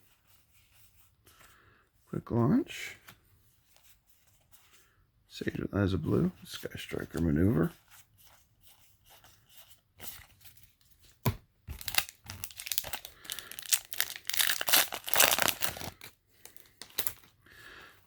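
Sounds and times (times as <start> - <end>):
foil wrapper tearing and crinkling: 11.7 - 17.3.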